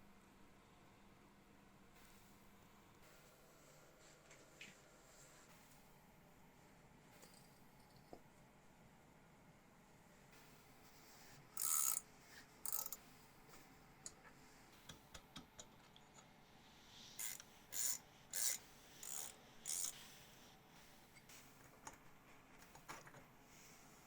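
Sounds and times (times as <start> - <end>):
rasping strokes of hand abrasive tool: 11.6 - 13.0, 17.1 - 21.2.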